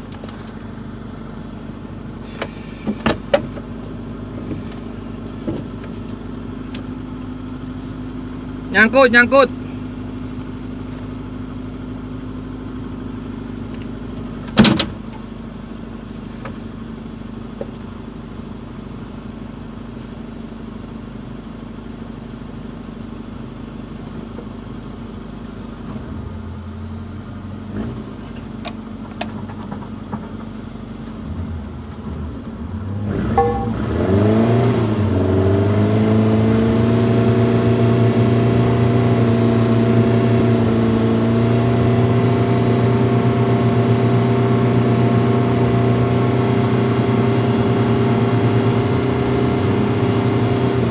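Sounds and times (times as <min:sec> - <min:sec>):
car engine running: 0:00.0 - 0:50.9
sharp knock: 0:33.4 - 0:34.0.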